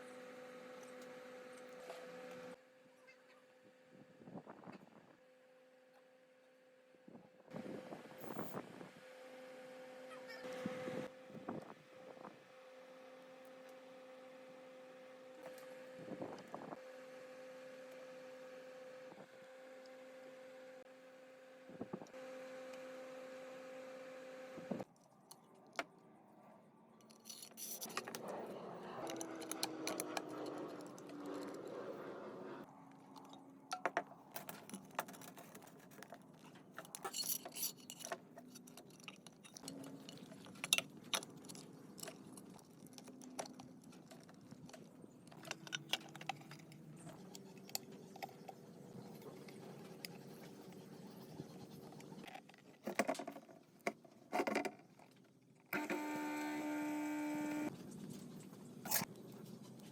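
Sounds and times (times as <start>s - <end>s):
mechanical hum: 0.0s - 24.9s, 55.7s - 59.9s
metal clinking and scraping: 27.0s - 32.0s, 33.2s - 48.5s.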